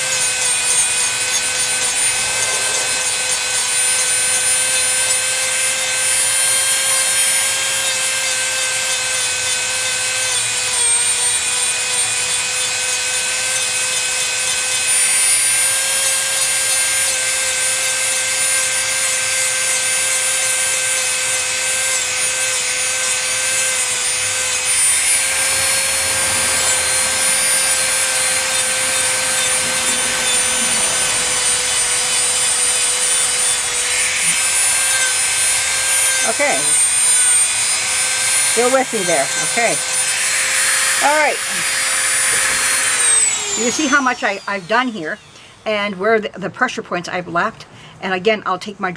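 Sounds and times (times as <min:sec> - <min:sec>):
bit grinding off paint: 0:00.0 - 0:12.9, 0:19.0 - 0:45.1
rotary tool whining: 0:00.0 - 0:46.2.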